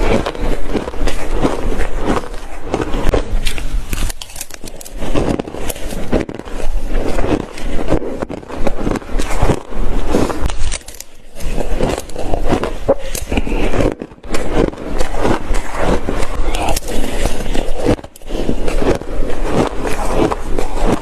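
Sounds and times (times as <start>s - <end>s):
chewing crunchy ice: 0.0s - 21.0s.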